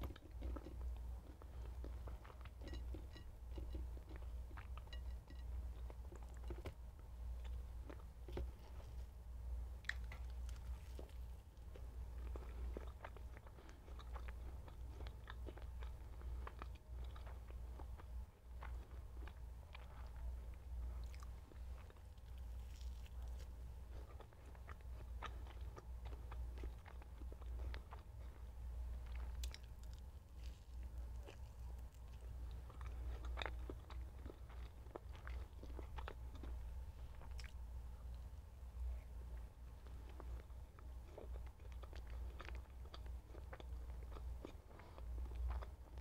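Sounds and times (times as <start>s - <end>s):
chewing soft food: 0.0s - 46.0s
low steady hum: 0.0s - 46.0s.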